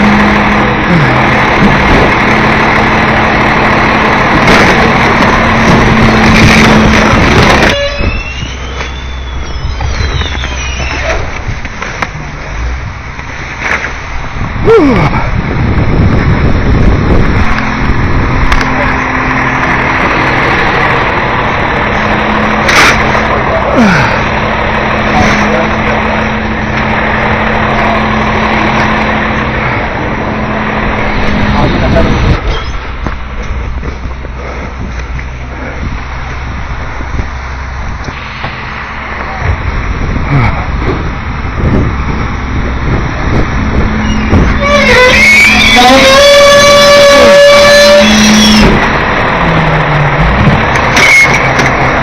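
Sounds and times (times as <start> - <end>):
garbage truck compactor running: 0.0 - 14.6, 15.3 - 52.0
creak falling in pitch: 6.4 - 11.4
thin squeals: 7.7 - 11.3, 32.5 - 32.8, 44.0 - 48.8.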